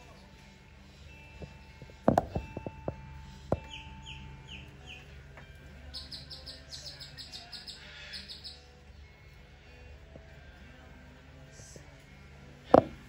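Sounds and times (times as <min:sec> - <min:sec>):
birds chirping: 0:00.0 - 0:10.9.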